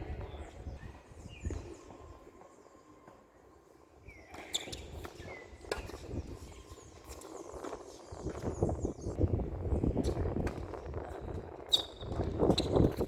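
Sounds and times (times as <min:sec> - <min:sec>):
shoe squeaks: 0:04.4 - 0:05.9, 0:11.7 - 0:13.0.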